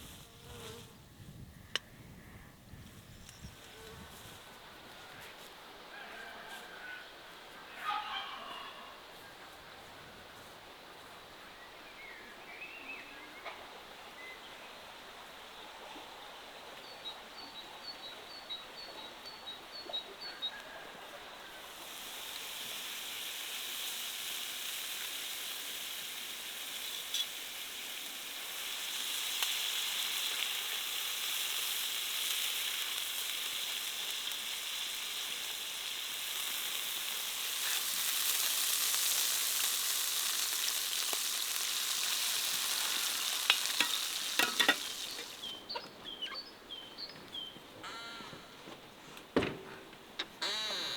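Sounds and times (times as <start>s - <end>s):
food sizzling in hot oil: 21.7s - 45.6s.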